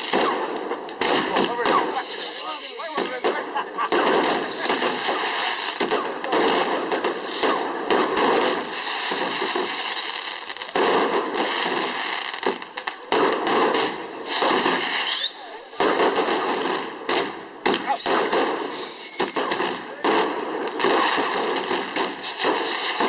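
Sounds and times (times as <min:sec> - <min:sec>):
fireworks crackling: 0:00.0 - 0:23.0
high whistle of fireworks: 0:01.5 - 0:03.6, 0:04.7 - 0:06.4, 0:09.9 - 0:11.1, 0:14.2 - 0:16.3, 0:17.8 - 0:19.6, 0:22.1 - 0:23.0.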